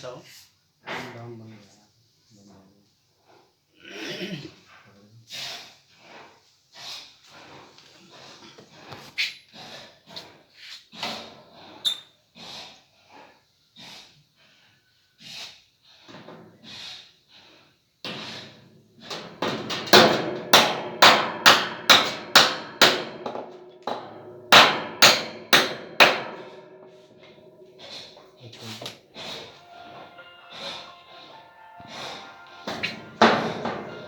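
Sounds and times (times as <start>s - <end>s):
hammer blows: 19.1s - 34.0s.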